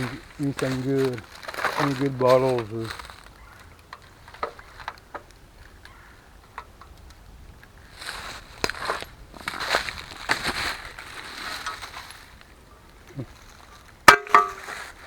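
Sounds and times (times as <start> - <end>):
footsteps through dry leaves: 0.0 - 5.1, 7.8 - 15.0
twig snapping: 0.0 - 7.2, 8.0 - 12.5.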